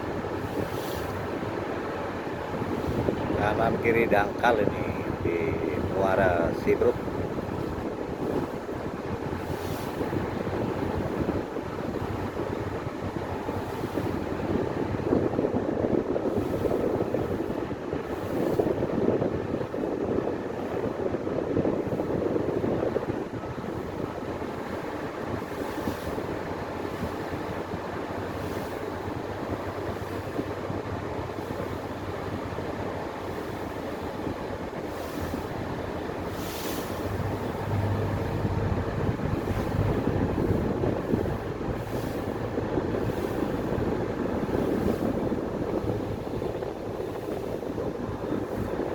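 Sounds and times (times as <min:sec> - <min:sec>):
water rushing along hull: 0:00.0 - 0:48.9
wind on microphone: 0:00.0 - 0:48.9
ferry engine rumbling: 0:23.6 - 0:48.9.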